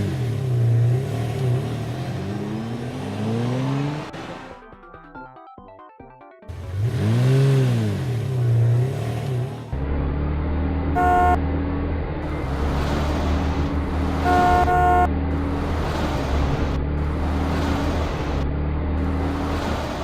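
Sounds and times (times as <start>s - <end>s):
cartoon horn tooting: 11.0s - 11.4s, 14.2s - 15.1s.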